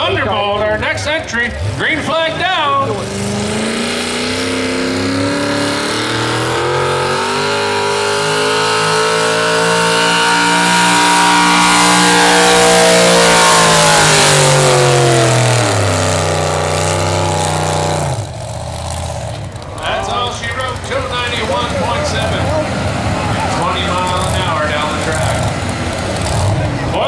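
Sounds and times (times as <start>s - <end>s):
truck engine at full throttle: 0.0s - 27.0s.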